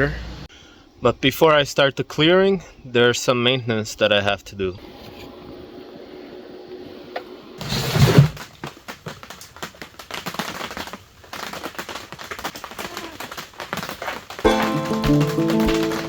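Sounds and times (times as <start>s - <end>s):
small hard objects clicking: 8.5s - 16.0s.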